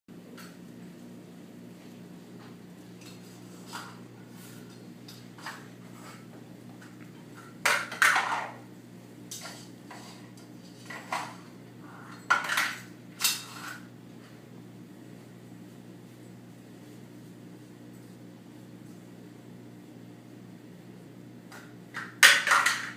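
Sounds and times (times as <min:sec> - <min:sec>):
steady low hum: 0:00.1 - 0:22.9
hard objects clattering: 0:22.0 - 0:22.9.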